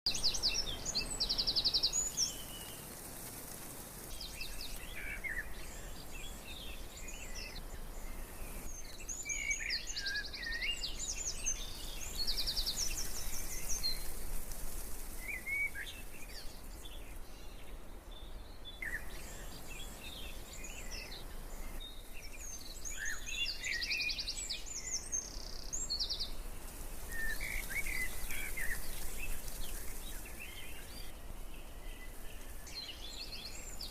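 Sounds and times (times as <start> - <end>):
birds chirping and trilling: 0.1 - 33.9.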